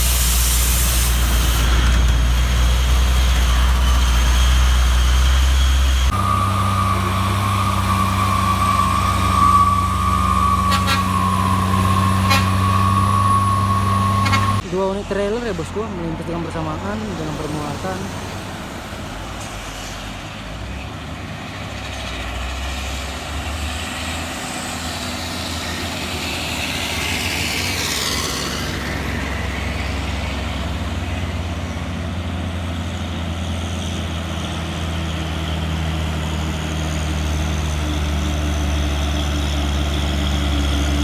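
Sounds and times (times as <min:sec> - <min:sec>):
hissing rush of air: 0:00.0 - 0:02.0, 0:06.1 - 0:14.6
truck diesel engines rumbling: 0:00.0 - 0:41.0.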